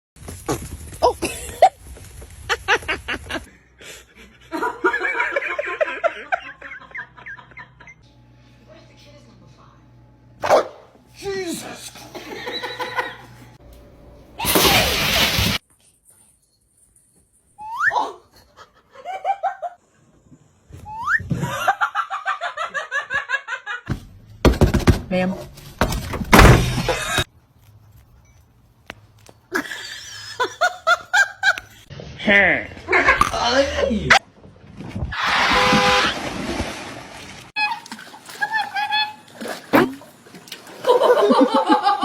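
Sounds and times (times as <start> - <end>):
person laughing: 1.0 - 1.8, 11.9 - 13.4, 29.5 - 31.8, 40.8 - 42.0
high-pitched laughter: 12.1 - 13.3, 38.4 - 39.3.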